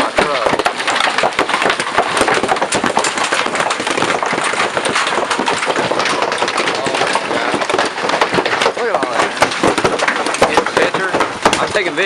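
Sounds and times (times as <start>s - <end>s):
hailstones pelting down: 0.0s - 12.0s.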